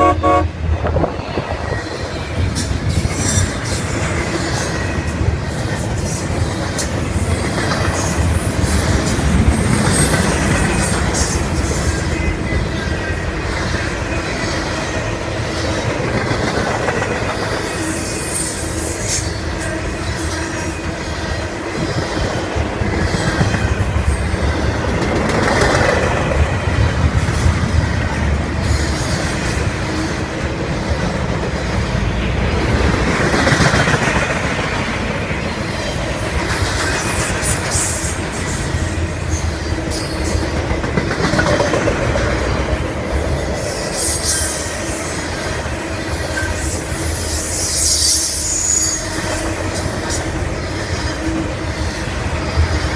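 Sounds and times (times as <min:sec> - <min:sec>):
freight train wheels rumbling: 0:00.0 - 0:52.9
clickety-clack of wheels: 0:01.4 - 0:52.9
thin wheel squeal: 0:46.2 - 0:49.4.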